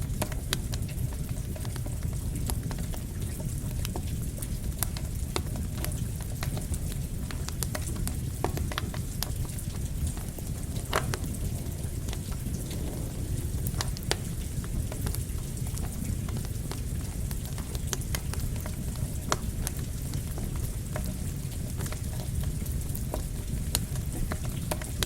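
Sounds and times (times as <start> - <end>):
campfire crackling and popping: 0.0 - 25.0
rain: 0.0 - 25.0.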